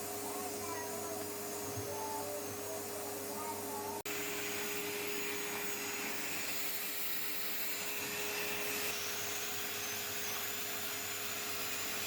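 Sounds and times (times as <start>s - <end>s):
vacuum cleaner whining: 0.0s - 12.0s.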